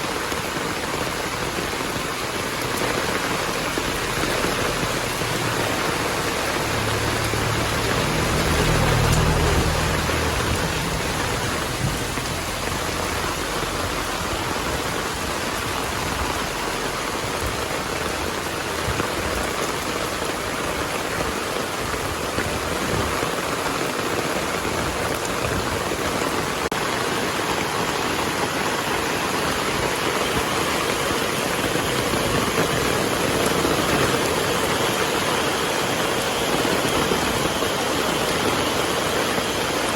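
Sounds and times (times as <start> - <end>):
heavy rain: 0.0 - 39.9
thunder rumbling: 2.5 - 21.4.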